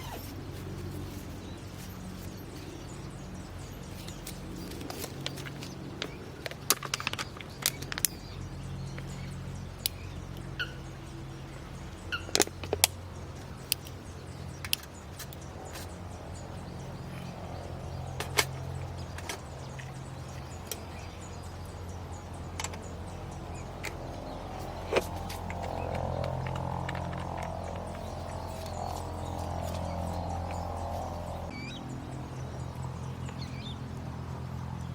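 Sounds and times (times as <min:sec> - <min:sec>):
steady low hum: 0:00.0 - 0:34.9
sharp clicks and cracks: 0:04.1 - 0:08.2, 0:14.6 - 0:16.0, 0:24.6 - 0:30.6.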